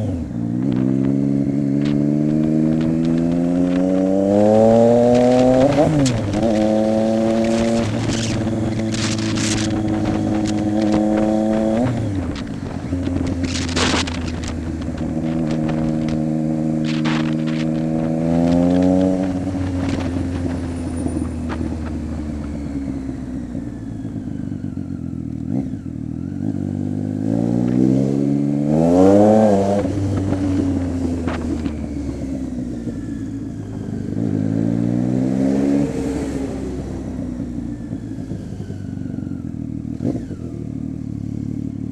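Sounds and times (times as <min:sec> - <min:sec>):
exhaust crackling: 0:00.0 - 0:25.6, 0:28.9 - 0:33.7
motorcycle engine revving: 0:00.0 - 0:41.9.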